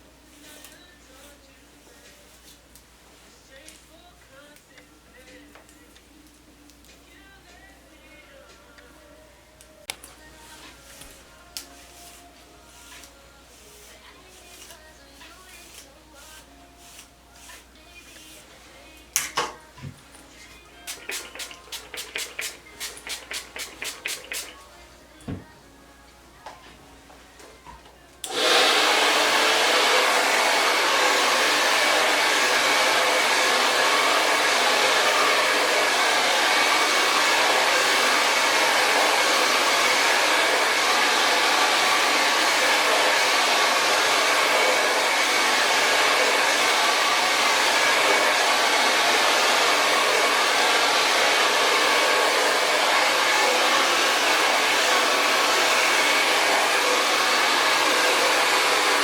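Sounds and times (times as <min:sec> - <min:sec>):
hair dryer running: 0:20.8 - 0:24.7, 0:28.2 - 0:59.0.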